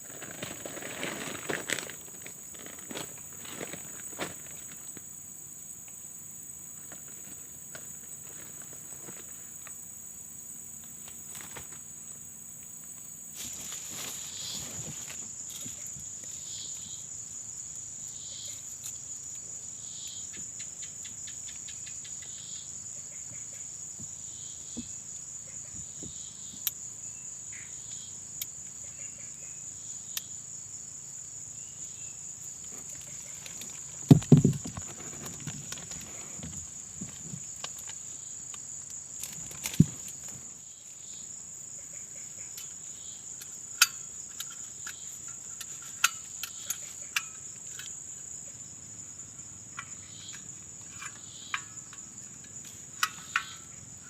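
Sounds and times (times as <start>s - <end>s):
insects trilling: 0.0s - 54.0s
soft pulsing insect call: 0.0s - 54.0s
cluster of knocks: 34.1s - 37.2s.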